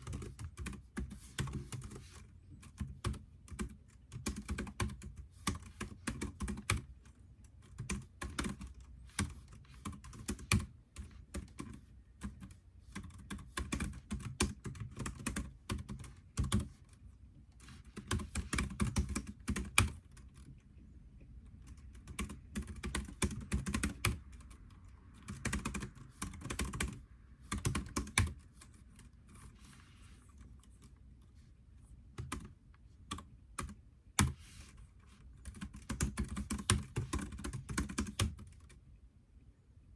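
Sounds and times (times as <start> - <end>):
computer keyboard typing: 0.0 - 17.0, 17.6 - 20.6, 21.6 - 29.6, 32.2 - 38.8.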